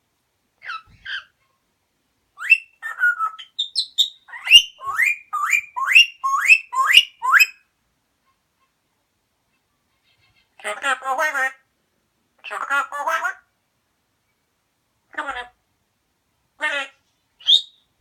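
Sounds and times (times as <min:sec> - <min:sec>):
parrot chirping: 0:00.6 - 0:01.4, 0:02.4 - 0:07.6, 0:16.6 - 0:17.9
parrot whistling rising notes: 0:04.4 - 0:07.5.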